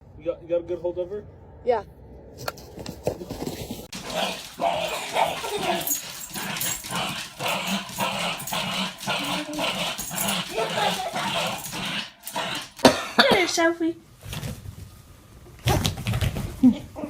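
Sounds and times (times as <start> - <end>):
dog vocalizing: 3.9 - 13.6.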